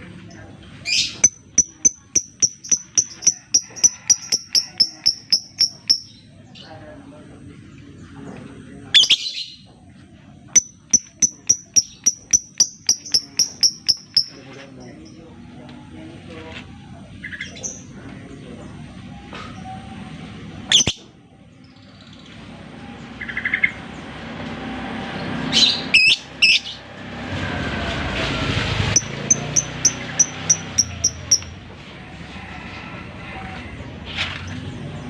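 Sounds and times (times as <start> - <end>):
lovebird chirping: 0.8 - 6.3, 8.9 - 9.6, 10.6 - 15.2, 20.7 - 21.1, 28.9 - 31.6.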